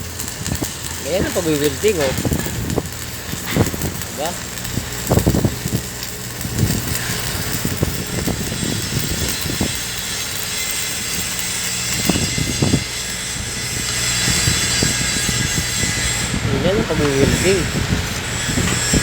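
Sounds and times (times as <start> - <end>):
welding arc hissing: 0.0 - 19.0.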